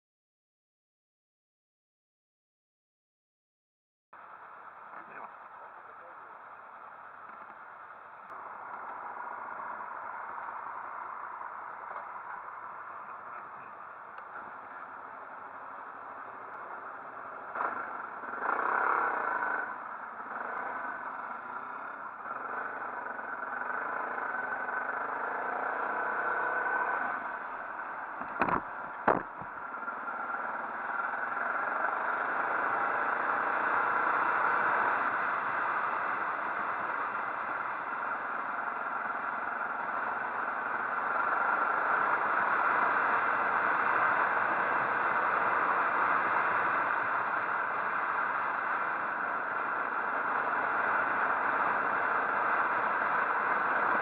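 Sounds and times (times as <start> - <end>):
motorcycle engine: 4.2 - 54.0
sharp knocks: 28.2 - 29.5.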